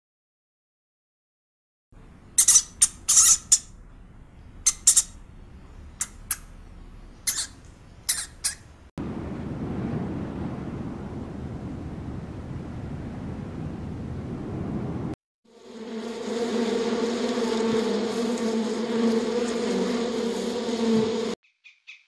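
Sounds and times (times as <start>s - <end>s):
animal squawking calls: 7.2s - 8.7s
steady low rumble: 8.7s - 15.2s.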